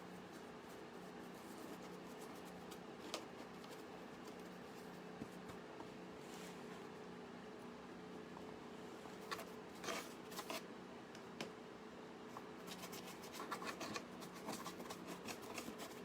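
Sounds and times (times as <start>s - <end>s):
paintbrush scratching and tapping: 12.4s - 16.0s.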